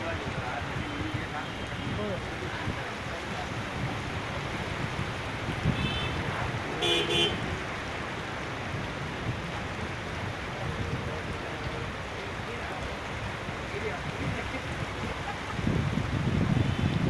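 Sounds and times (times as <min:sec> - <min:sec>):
heavy rain: 0:00.0 - 0:17.0
traffic noise: 0:00.0 - 0:17.0
vehicle horn honking: 0:05.7 - 0:07.5.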